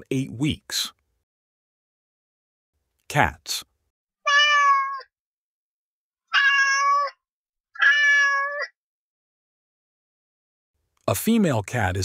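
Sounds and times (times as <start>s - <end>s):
cat meowing: 4.2s - 5.1s, 6.3s - 8.8s.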